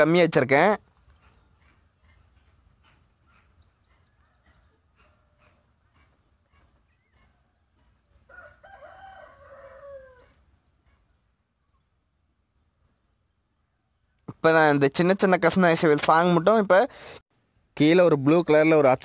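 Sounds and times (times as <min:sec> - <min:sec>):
high bird chirp: 0:00.0 - 0:17.2
bird crowing call: 0:03.9 - 0:11.1.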